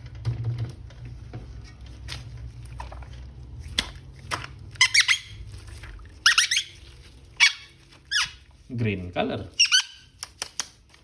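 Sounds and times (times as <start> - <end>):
plastic action figure squeaking: 4.8 - 5.3, 6.2 - 6.8, 7.4 - 8.4, 9.5 - 10.1.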